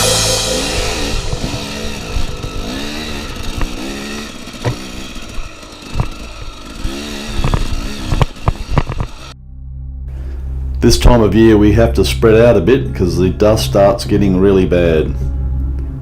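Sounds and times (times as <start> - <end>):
motorcycle engine revving: 0.0 - 9.4.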